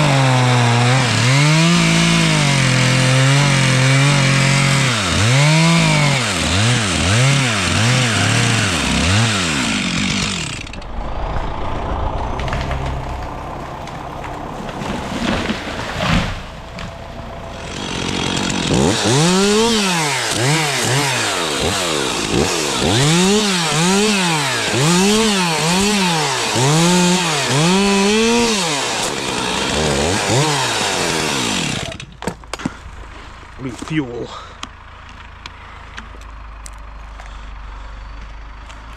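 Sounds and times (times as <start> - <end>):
chainsaw revving while cutting: 0.0 - 10.8, 14.7 - 32.0.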